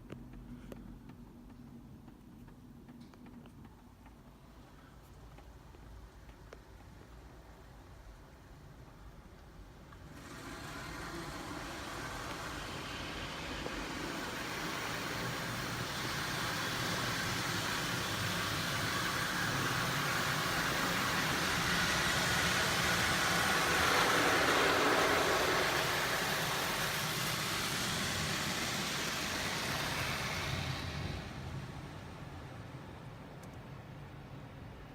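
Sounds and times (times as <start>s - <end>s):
car wash spray and machinery: 9.3s - 34.8s.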